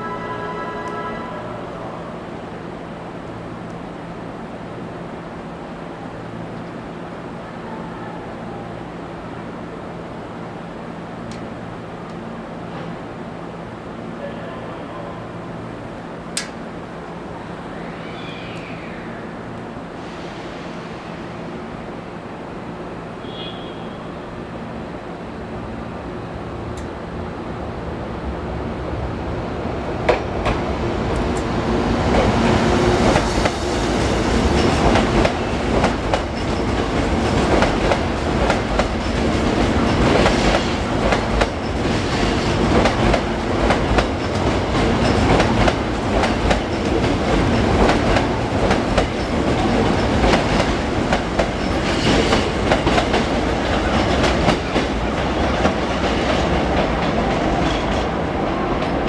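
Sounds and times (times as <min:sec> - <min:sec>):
electric train running on track: 0:29.2 - 0:59.0.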